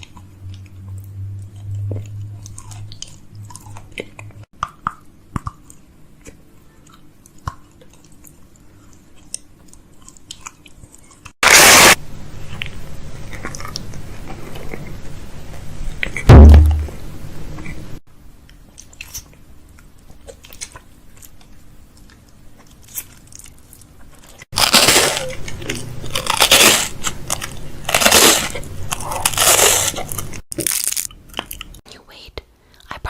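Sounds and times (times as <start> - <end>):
heavy thump: 16.3 - 17.0
food packaging crinkling: 22.0 - 31.8.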